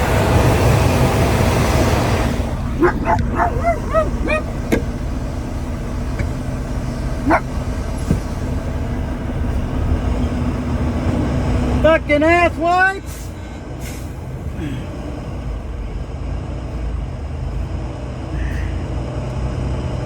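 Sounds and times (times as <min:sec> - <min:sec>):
diesel engine running: 0:00.0 - 0:20.0
dog yipping and whining: 0:02.6 - 0:04.8, 0:07.2 - 0:07.6.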